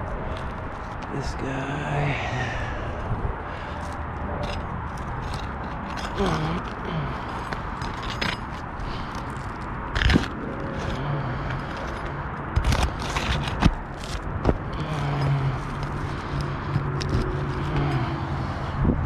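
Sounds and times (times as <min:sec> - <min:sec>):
roof shingles scraping and crackling: 0:03.5 - 0:18.6.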